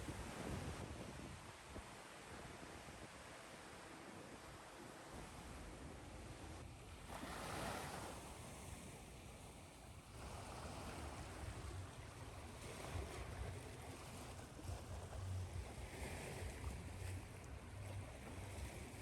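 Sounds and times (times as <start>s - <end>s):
ocean waves washing in: 7.0s - 19.0s.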